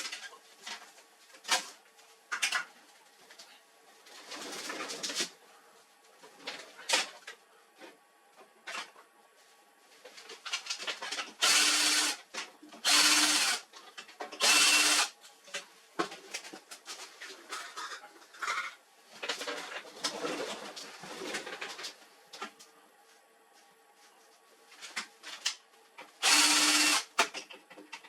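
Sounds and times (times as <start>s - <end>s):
electric screwdriver motor: 11.4s - 12.2s, 12.8s - 13.6s, 14.4s - 15.1s, 26.2s - 27.1s.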